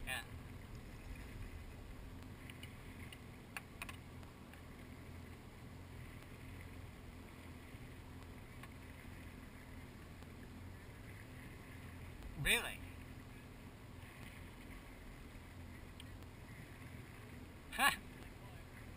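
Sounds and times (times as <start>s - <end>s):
watercraft engine humming: 0.0s - 18.9s.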